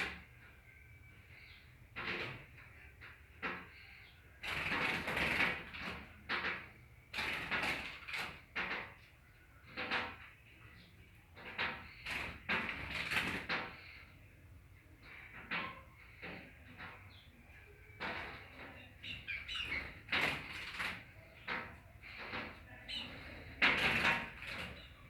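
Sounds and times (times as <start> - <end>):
bird fluttering and pecking: 4.4 - 9.0, 11.4 - 14.0, 18.0 - 25.0.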